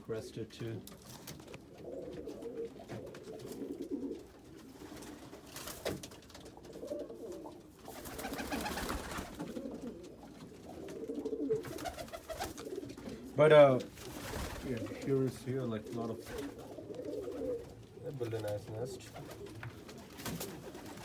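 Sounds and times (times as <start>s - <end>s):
pigeons cooing: 1.0s - 21.0s.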